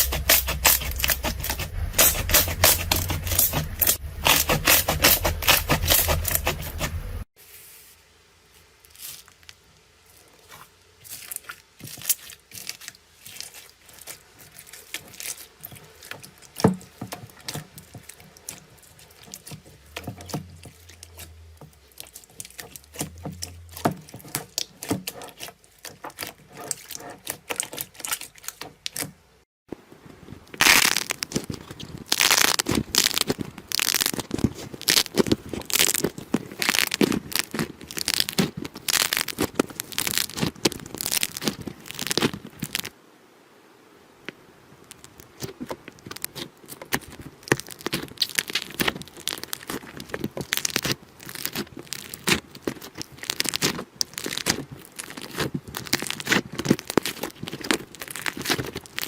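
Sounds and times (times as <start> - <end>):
slime clicking and popping: 32.1 - 42.9, 46.0 - 59.0.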